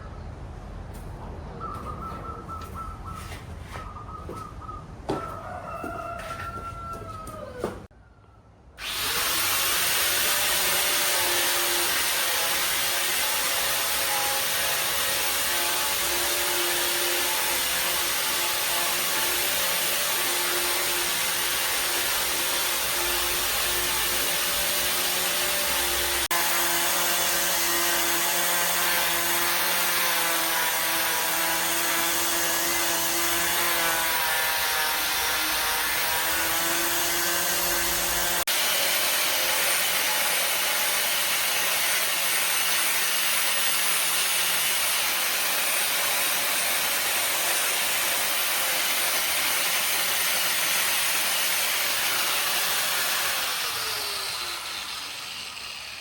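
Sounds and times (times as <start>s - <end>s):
power tool motor whining: 8.8s - 47.3s.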